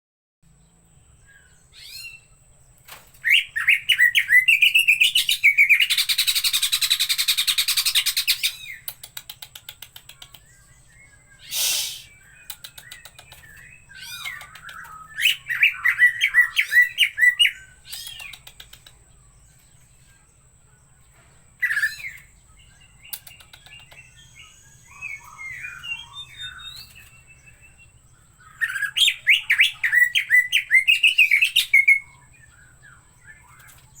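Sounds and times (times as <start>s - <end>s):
bird chattering song: 0.7s - 34.0s
single bird calls: 11.4s - 12.2s.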